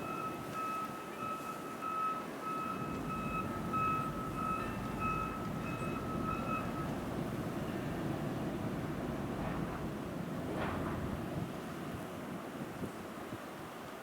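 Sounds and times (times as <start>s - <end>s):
vehicle backup alarm beeping: 0.0s - 8.2s
low rumble of wind: 0.0s - 14.0s
traffic rumble: 2.4s - 12.1s.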